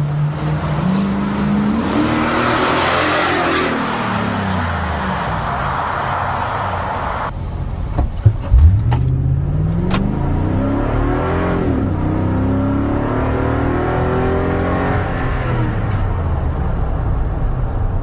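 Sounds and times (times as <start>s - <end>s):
truck engine accelerating: 7.2s - 18.0s
loud thumps: 7.3s - 9.2s.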